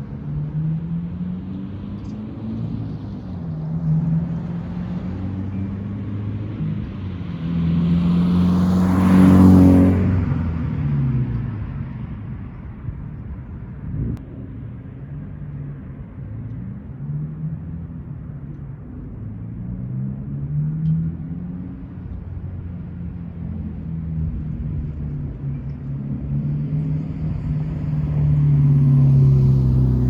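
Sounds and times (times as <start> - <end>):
car engine accelerating past: 0.2 - 12.1, 19.3 - 30.0.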